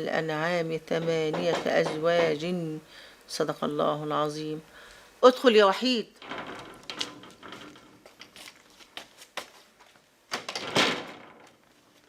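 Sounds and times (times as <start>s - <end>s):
door clicks and knocks: 1.1s - 2.5s, 6.2s - 8.5s, 10.3s - 11.7s
footsteps: 6.2s - 10.0s.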